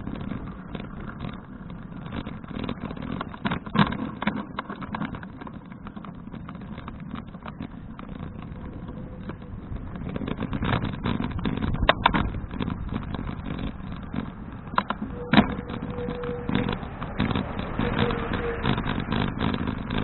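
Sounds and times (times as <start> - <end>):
bike rattling over bumps: 0.0 - 20.0
wind and tyre rumble: 0.0 - 20.0
short steady whine: 13.1 - 19.4.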